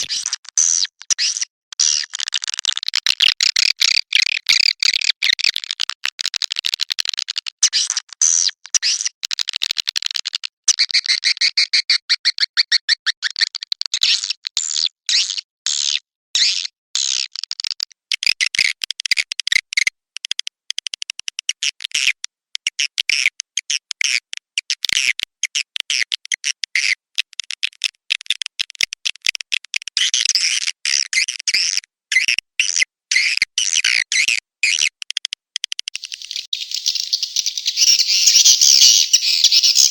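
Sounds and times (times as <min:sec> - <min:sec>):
swiftlets chattering trills: 0:36.0 - 0:39.9.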